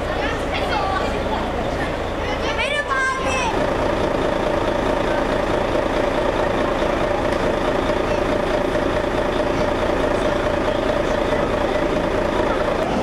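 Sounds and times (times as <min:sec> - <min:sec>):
large vehicle engine idling: 0:00.0 - 0:13.0.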